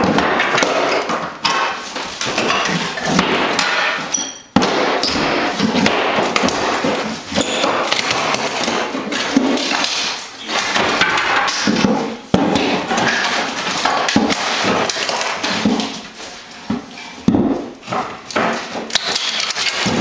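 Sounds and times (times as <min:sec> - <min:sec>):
hammering on floorboards: 0:00.0 - 0:20.0
sharp hard knock: 0:19.8 - 0:20.0.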